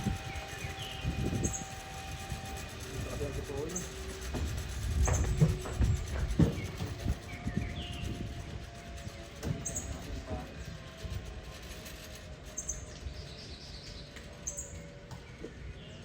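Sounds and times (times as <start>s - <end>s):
high falling bird chirps: 0.2s - 2.0s.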